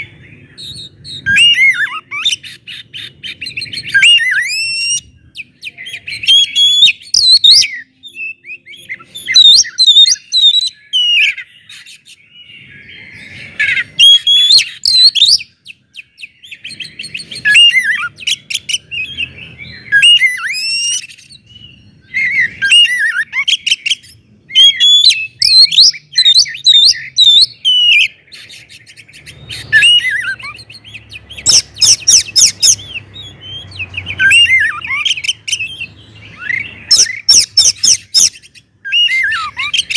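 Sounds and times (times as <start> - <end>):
bird singing loudly: 0.0 - 39.9.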